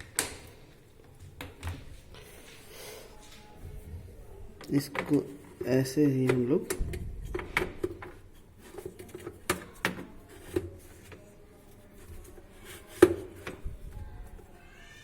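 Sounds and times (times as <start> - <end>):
plastic filter knocking and clicking: 6.1 - 11.2, 12.8 - 13.9.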